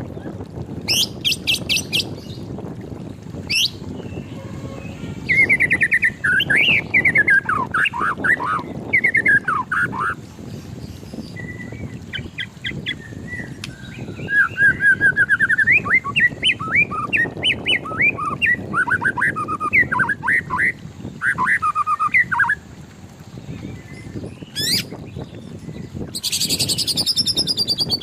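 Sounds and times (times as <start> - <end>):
bird singing whistled notes: 3.5 - 10.2, 11.2 - 22.6, 23.8 - 28.0.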